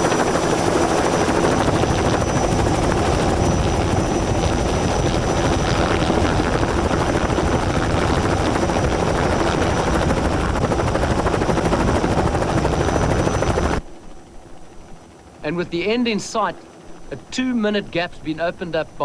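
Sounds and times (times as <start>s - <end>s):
helicopter rotor chop: 0.0s - 13.8s.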